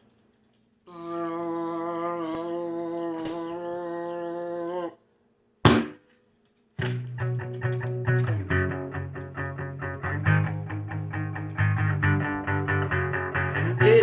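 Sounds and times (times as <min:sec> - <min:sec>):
person humming: 0:00.9 - 0:05.0, 0:13.6 - 0:14.0
single sharp hit: 0:05.7 - 0:06.0
strummed guitar chords: 0:07.0 - 0:14.0.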